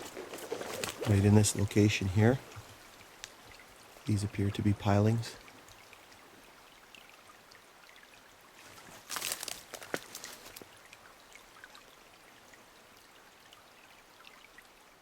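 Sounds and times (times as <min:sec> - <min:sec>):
twig cracking: 0:00.0 - 0:01.2, 0:09.0 - 0:10.6
footsteps through brush and twigs: 0:00.0 - 0:01.4, 0:08.6 - 0:10.7
faint steady hiss: 0:00.0 - 0:15.0.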